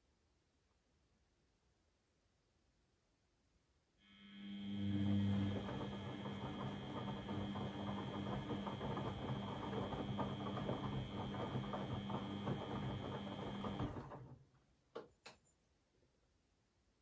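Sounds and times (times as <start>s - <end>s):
washing machine running: 4.1s - 14.5s.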